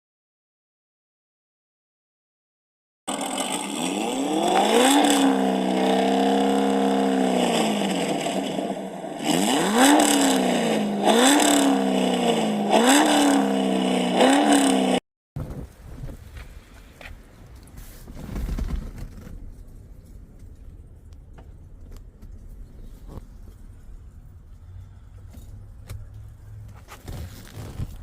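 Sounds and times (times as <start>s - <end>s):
car engine revving: 3.1s - 15.0s.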